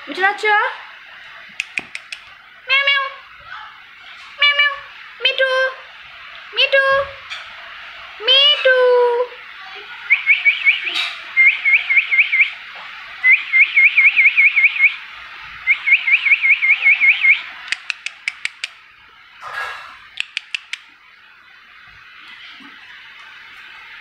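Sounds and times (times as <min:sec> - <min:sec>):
sharp clicks: 0:01.5 - 0:02.3, 0:17.7 - 0:18.8, 0:20.2 - 0:20.9
parakeet chirping: 0:10.1 - 0:12.6, 0:15.7 - 0:18.7.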